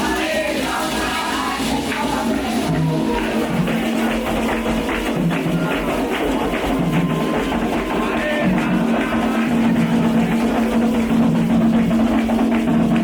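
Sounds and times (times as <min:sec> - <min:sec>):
hand drums and percussion: 0:00.0 - 0:13.0.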